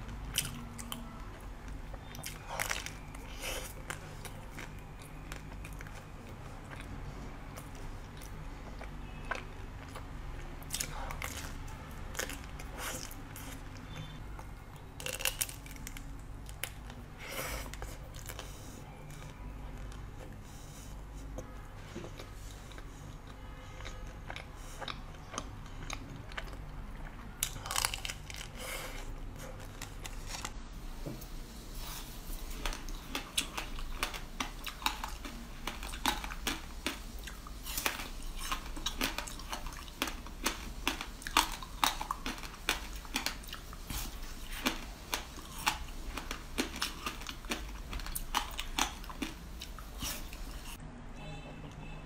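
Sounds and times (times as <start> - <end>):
soft chewing of cake: 0.0 - 30.6, 31.7 - 50.8
crunching seed brittle: 27.4 - 28.6.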